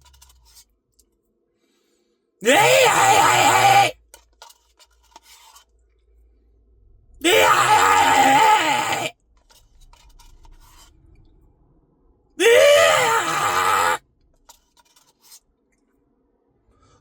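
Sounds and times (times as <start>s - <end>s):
man groaning: 2.4s - 3.9s, 7.2s - 9.1s, 12.4s - 14.0s.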